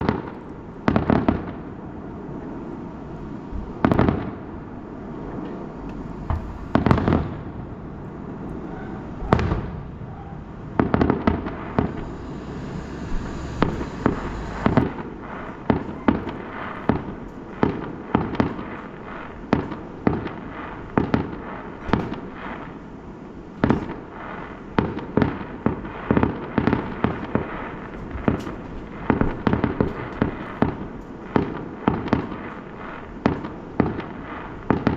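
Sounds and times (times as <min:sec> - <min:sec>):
fireworks bangs and crackles: 0:00.0 - 0:34.9
steady rumble: 0:04.4 - 0:18.1.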